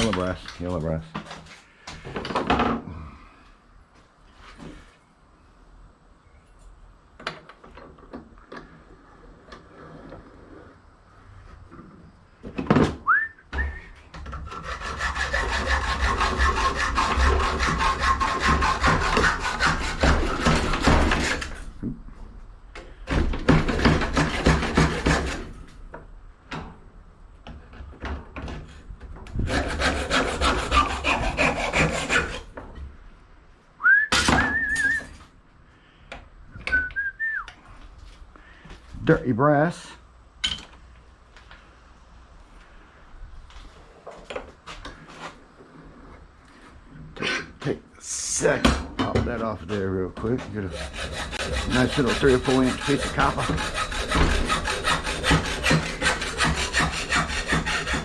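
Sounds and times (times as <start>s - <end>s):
short rising whistled note: 13.0s - 14.0s, 33.8s - 35.2s, 36.5s - 37.5s
hand tool rasping on brass: 14.5s - 21.6s, 29.5s - 32.5s, 50.3s - 58.0s.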